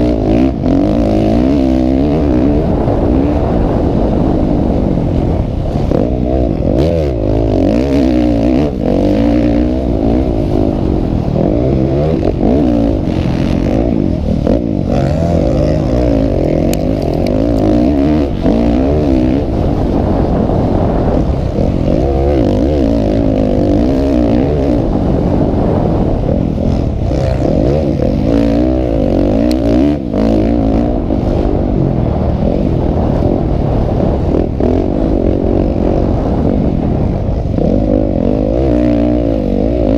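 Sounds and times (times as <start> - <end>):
motocross engines revving: 0.0 - 39.9.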